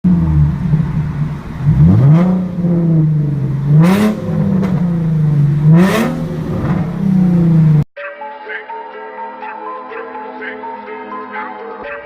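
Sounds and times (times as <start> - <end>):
car engine idling with throttle blips: 0.0 - 7.9.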